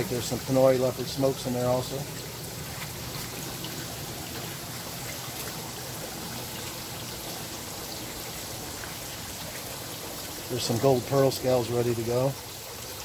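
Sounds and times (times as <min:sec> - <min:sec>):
water trickling into vats: 0:00.0 - 0:13.0.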